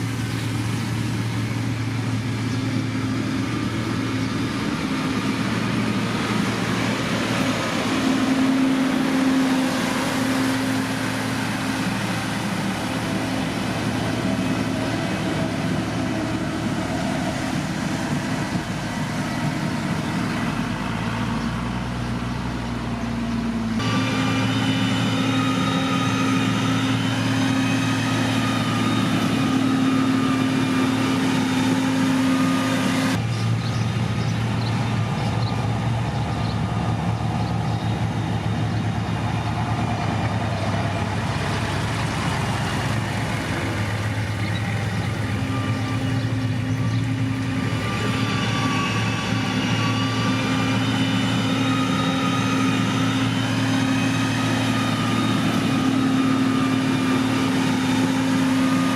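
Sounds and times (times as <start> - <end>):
heavy diesel engines running: 0.0 - 58.9
high steady whines: 0.0 - 58.9.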